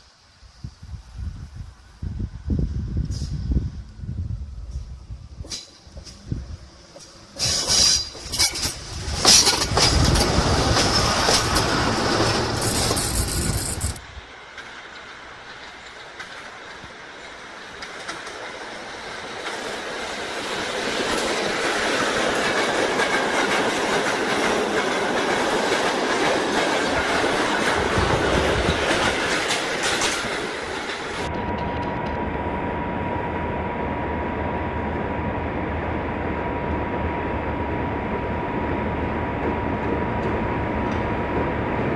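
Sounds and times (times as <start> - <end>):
train wheel squeal: 4.7 - 14.0
train wheels clattering on rails: 5.4 - 32.2.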